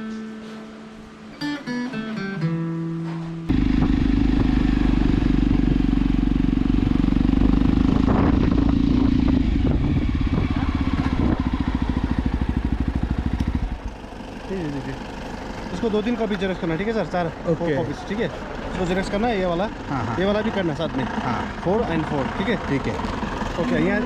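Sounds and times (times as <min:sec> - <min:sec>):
acoustic guitar music: 0:00.0 - 0:05.3
motorcycle engine running: 0:03.5 - 0:24.0.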